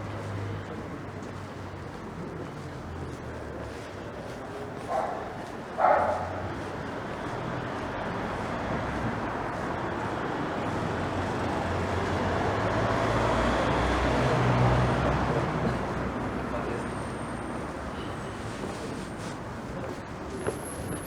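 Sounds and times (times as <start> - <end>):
dog barking: 4.9 - 6.4.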